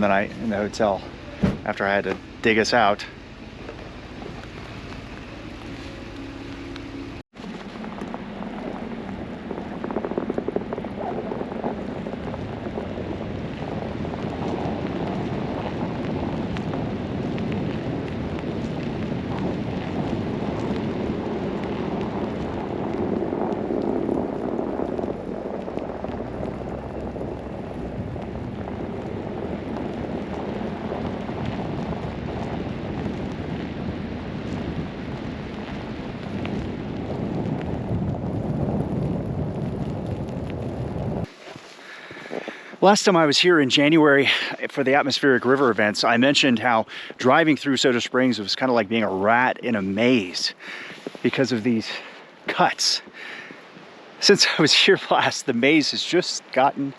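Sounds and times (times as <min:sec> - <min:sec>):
vehicle driving on snowy road: 0:00.0 - 0:41.3.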